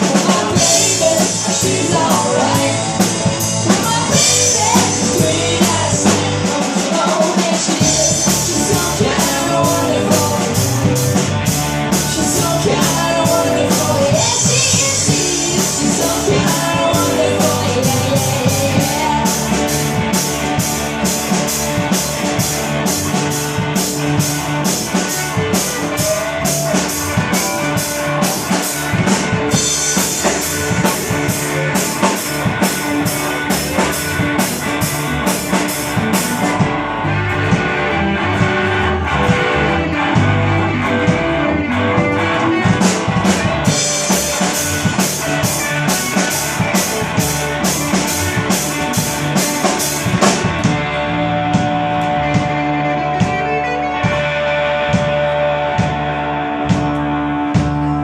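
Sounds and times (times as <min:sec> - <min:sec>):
drum kit cymbal beat: 0:00.0 - 0:36.7, 0:42.0 - 0:50.8
electric guitar: 0:00.0 - 0:58.0.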